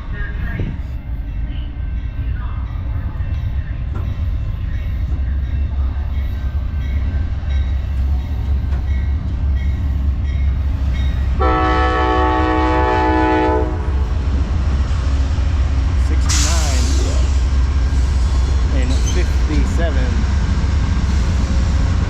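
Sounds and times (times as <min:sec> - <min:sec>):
diesel locomotive rumbling: 0:00.0 - 0:22.0
locomotive horn blast: 0:11.4 - 0:14.1.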